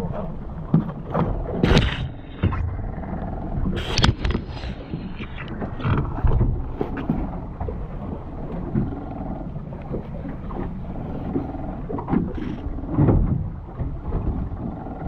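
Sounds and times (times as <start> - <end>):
boat engine low rumble: 0.0 - 15.0.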